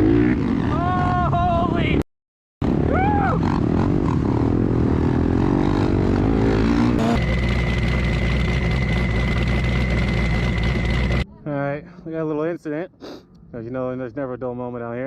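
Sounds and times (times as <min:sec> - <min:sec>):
off-road vehicle engine revving: 0:02.6 - 0:11.2
thin even whine: 0:06.9 - 0:11.2.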